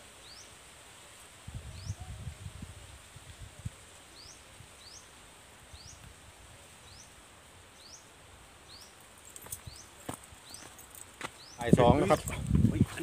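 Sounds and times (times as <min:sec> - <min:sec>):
bird chirping: 0:07.8 - 0:12.3.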